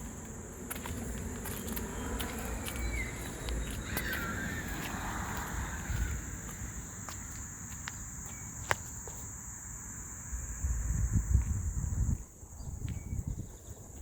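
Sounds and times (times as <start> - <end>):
high insect drone: 0.0 - 14.0
bird call: 2.7 - 6.1.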